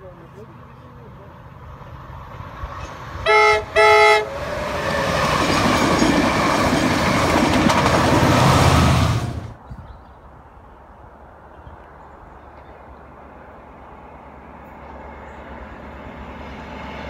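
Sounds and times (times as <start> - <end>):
passenger train passing: 0.0 - 17.0
train horn blasts: 3.2 - 4.4
diesel locomotive throb: 3.2 - 9.6.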